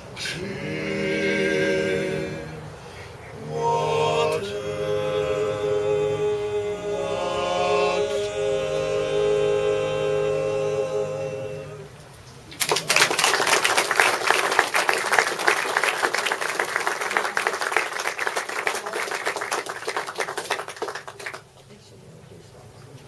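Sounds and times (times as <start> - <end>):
audience applause: 12.5 - 21.6.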